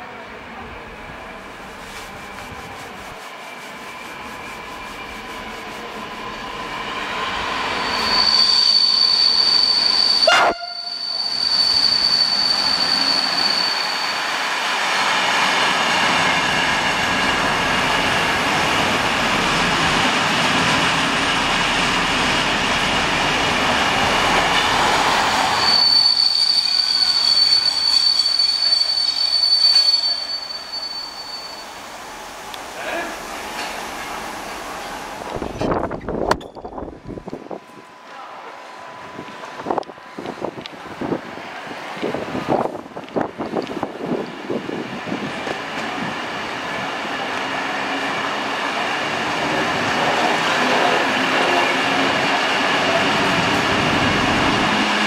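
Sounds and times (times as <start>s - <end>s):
high brake squeal: 7.6s - 14.4s, 25.3s - 32.0s
train wheels rumbling over rails: 39.0s - 55.0s.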